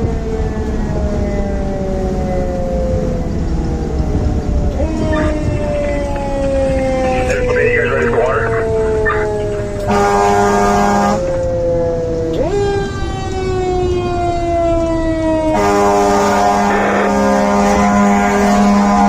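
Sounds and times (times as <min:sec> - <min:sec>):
fire engine air horn blasts: 0:09.8 - 0:11.3, 0:15.4 - 0:19.0.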